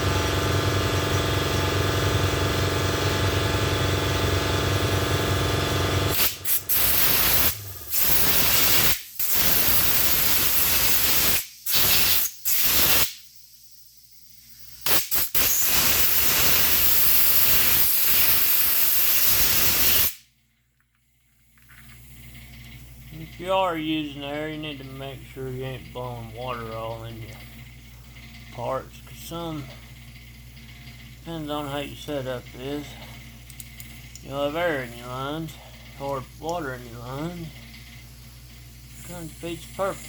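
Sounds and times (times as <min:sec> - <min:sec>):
air compressor motor running: 0:00.0 - 0:13.2, 0:14.4 - 0:20.3, 0:21.4 - 0:40.0
air blow gun hissing: 0:06.1 - 0:13.3, 0:14.5 - 0:20.2, 0:38.9 - 0:40.0.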